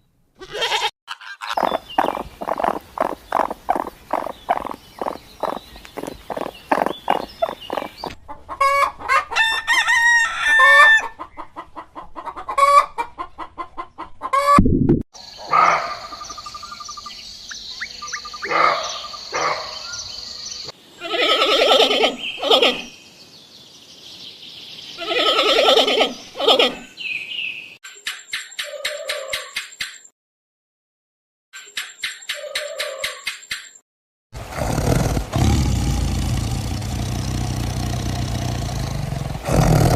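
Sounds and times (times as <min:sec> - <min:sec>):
chickens clucking: 0:01.4 - 0:09.5, 0:10.7 - 0:14.6
rooster crowing: 0:08.7 - 0:11.2.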